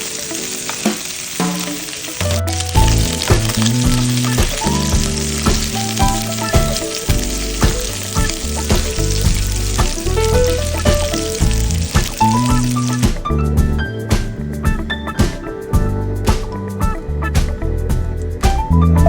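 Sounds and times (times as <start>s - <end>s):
food sizzling: 0.0s - 16.6s
instrumental music with beat: 0.0s - 19.0s.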